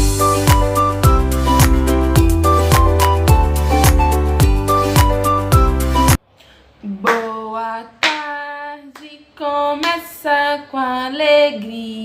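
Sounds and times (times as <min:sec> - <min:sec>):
music track: 0:00.0 - 0:06.2
hand claps: 0:02.7 - 0:04.2, 0:05.0 - 0:05.4, 0:07.0 - 0:07.4, 0:08.0 - 0:08.3
woman singing: 0:06.8 - 0:12.0.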